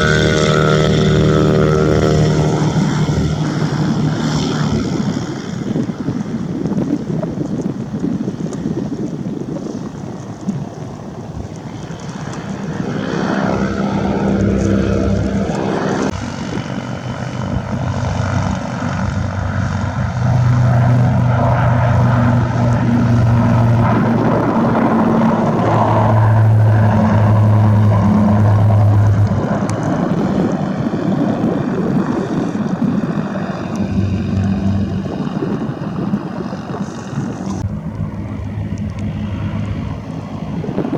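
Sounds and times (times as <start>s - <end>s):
propeller airplane engine droning: 0.0s - 40.9s.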